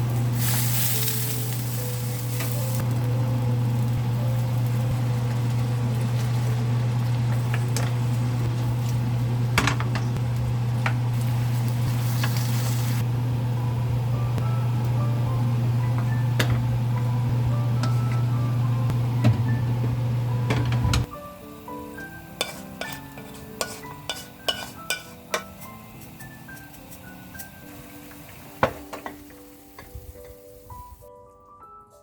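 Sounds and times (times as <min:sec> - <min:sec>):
food sizzling in a pan: 0:00.0 - 0:10.1, 0:11.0 - 0:13.0, 0:21.1 - 0:31.1.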